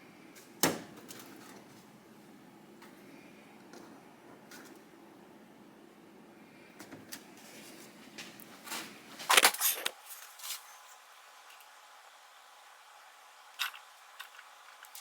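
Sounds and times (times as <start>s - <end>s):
small hard objects clicking: 13.6s - 15.0s.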